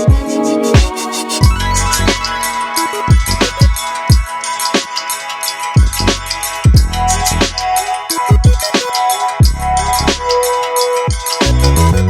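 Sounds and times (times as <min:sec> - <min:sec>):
electronic music with drum beat: 0:00.0 - 0:12.0
deep bass hits: 0:01.4 - 0:02.3, 0:05.8 - 0:07.6.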